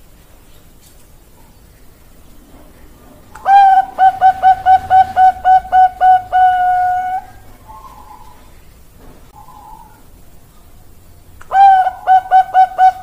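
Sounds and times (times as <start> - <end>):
dove cooing song: 3.2 - 8.6, 9.3 - 10.2, 11.5 - 13.0.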